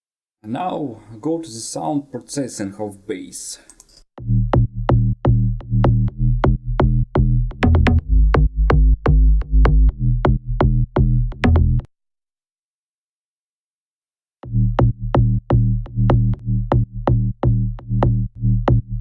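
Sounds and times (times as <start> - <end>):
drum machine beat: 4.2 - 11.9, 14.4 - 19.0.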